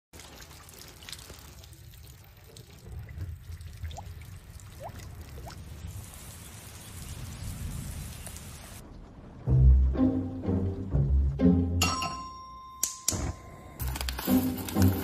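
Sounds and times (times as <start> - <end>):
rain dripping into puddles: 0.0 - 10.9
rising water-drop plinks: 0.2 - 6.0.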